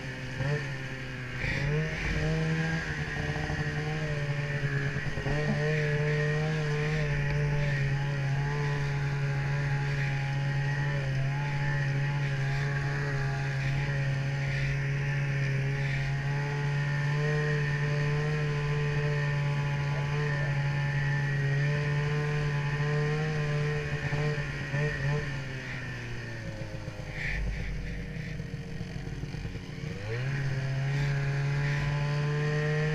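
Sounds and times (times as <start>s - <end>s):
snowmobile engine droning: 0.0s - 32.9s.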